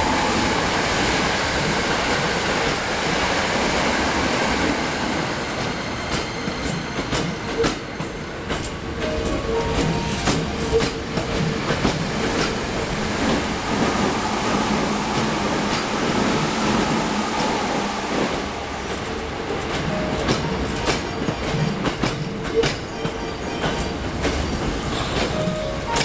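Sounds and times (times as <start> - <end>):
train rumbling past: 0.0 - 26.0
wheels clacking over rail joints: 18.9 - 26.0.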